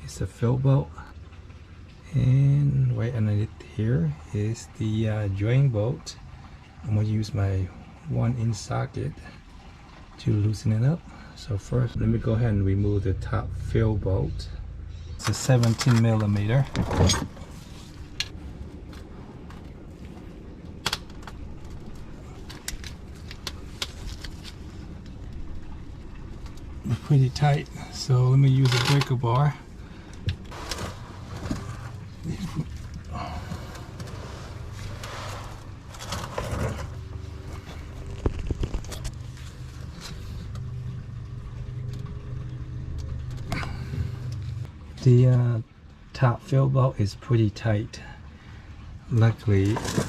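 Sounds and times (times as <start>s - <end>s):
vehicle engine running: 11.2s - 45.2s.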